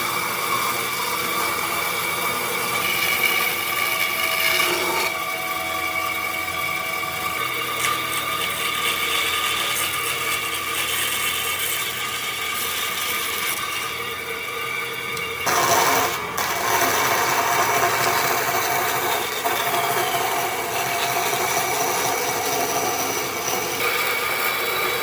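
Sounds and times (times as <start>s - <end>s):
power tool whining on wood: 0.0s - 25.0s.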